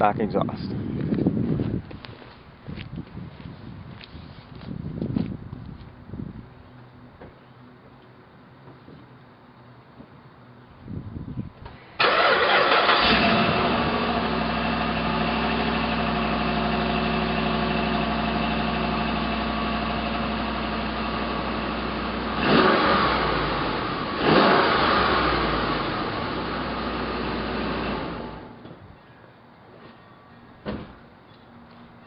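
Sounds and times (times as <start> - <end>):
truck engine starting and idling: 12.0 - 28.7.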